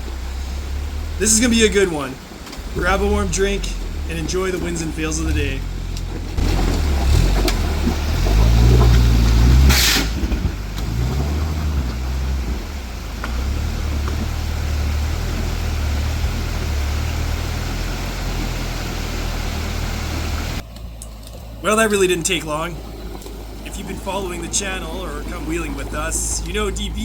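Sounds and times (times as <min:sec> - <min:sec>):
truck engine revving: 0:00.0 - 0:27.0
sharp hiss: 0:09.7 - 0:10.2.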